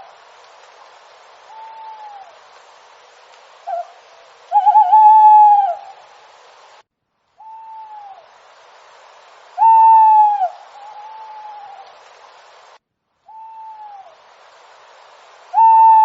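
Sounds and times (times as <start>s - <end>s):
steady hiss: 0.0s - 16.0s
owl hooting: 1.4s - 2.4s, 3.6s - 6.1s, 7.4s - 8.3s, 9.6s - 12.0s, 13.3s - 14.2s, 15.5s - 16.0s.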